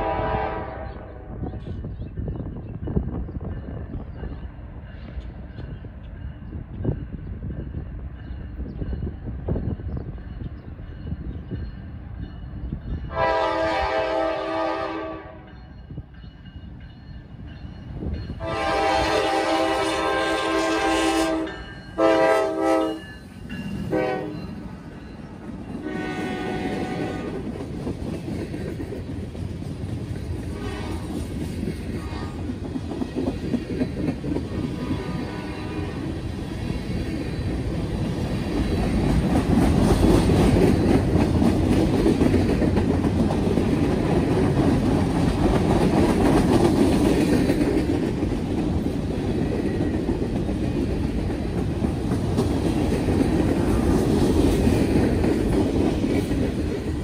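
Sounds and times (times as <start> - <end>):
train horn blasting: 0.0 - 1.6, 13.1 - 15.5, 18.4 - 23.1, 23.9 - 24.6, 25.8 - 27.5, 30.5 - 31.2, 32.0 - 32.4, 34.7 - 36.2
train wheels clattering on rails: 1.5 - 14.8, 15.5 - 57.0.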